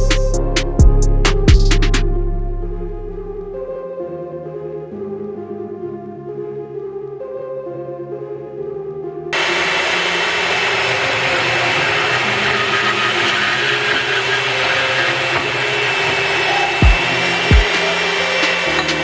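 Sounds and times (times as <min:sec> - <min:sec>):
background music: 0:00.0 - 0:19.0
power tool running: 0:09.4 - 0:19.0.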